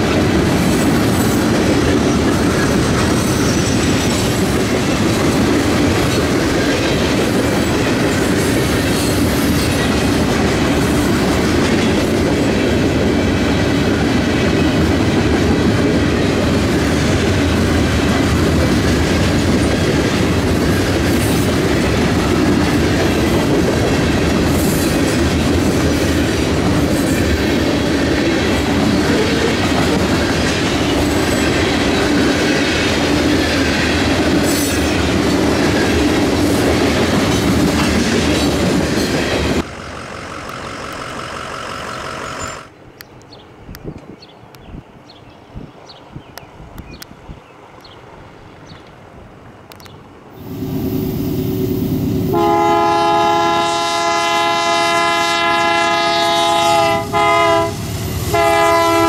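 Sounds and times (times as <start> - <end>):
train cars rumbling along track: 0.0 - 59.0
high wheel squeals: 40.0 - 42.8.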